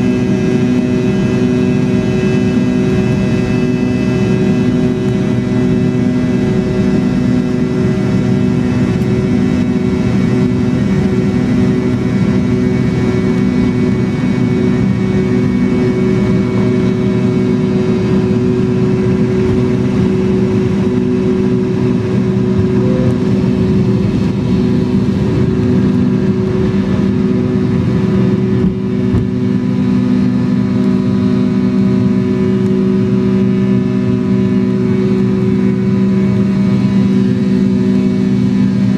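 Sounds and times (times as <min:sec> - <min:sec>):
airliner cabin drone: 0:00.0 - 0:38.9
fixed whining tones: 0:17.7 - 0:26.4.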